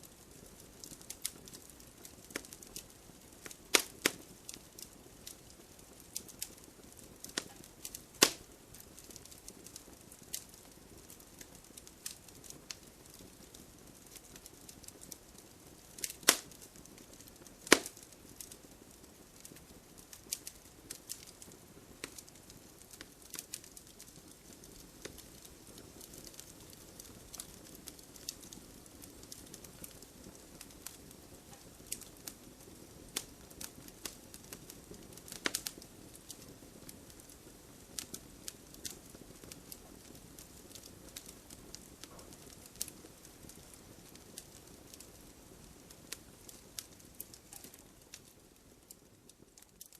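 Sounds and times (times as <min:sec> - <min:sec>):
wood fire crackling: 0:00.0 - 0:49.9.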